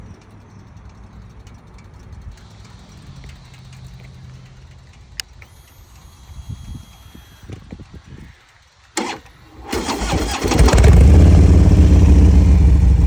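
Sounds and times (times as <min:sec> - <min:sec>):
faint high whine: 0:05.4 - 0:07.6
motorcycle engine cranking: 0:08.9 - 0:13.0.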